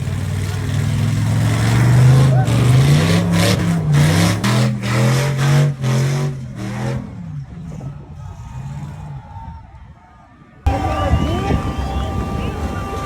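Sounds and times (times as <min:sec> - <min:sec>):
truck engine revving: 0:00.0 - 0:09.4.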